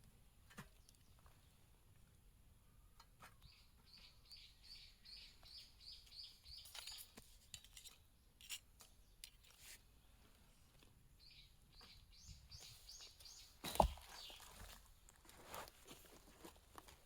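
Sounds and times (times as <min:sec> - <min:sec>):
songbird call: 0:02.8 - 0:07.0, 0:11.2 - 0:14.4.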